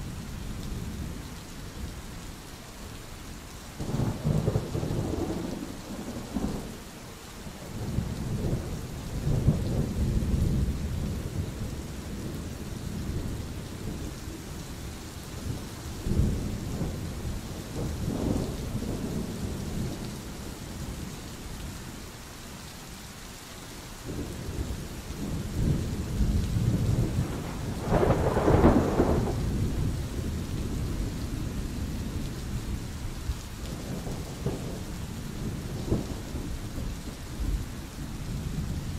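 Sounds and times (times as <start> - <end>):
steady rain hiss: 0.0 - 38.9
rolling thunder: 7.7 - 14.1, 15.4 - 21.1, 24.1 - 32.8, 33.7 - 38.9.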